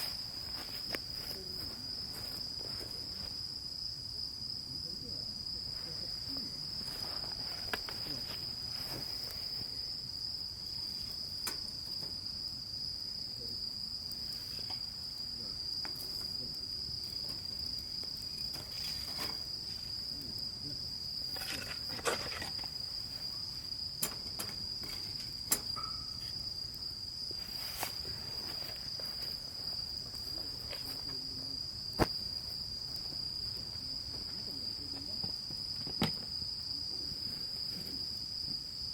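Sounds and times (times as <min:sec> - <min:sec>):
insects trilling: 0:00.0 - 0:38.9
sharp clicks and knocks: 0:24.0 - 0:26.0.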